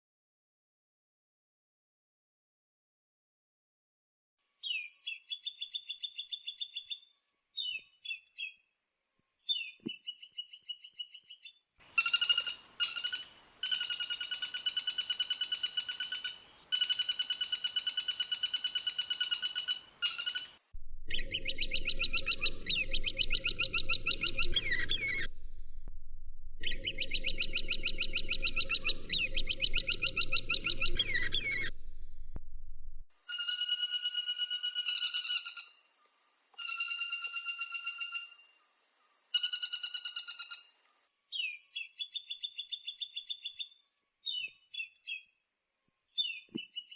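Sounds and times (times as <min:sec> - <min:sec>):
woodpecker rattling trills: 0:12.0 - 0:25.7, 0:26.6 - 0:32.3
steady low hum: 0:20.6 - 0:33.1.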